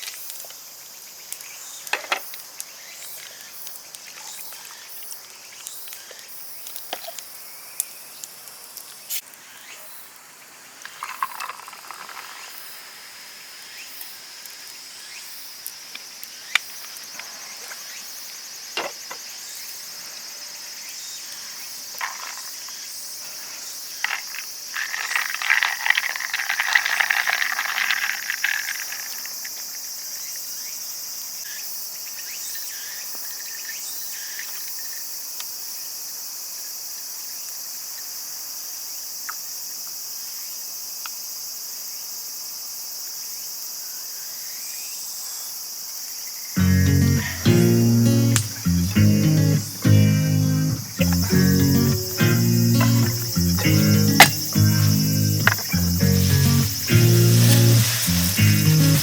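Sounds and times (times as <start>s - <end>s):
insects chirring: 0.0s - 42.0s, 43.8s - 59.0s
loud rustling: 50.8s - 59.0s
sharp clicks and knocks: 54.2s - 54.6s, 55.4s - 55.8s.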